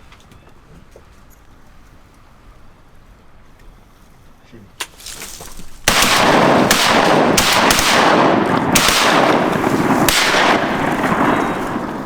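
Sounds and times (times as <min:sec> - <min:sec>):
shotgun blasts: 0:05.8 - 0:12.0.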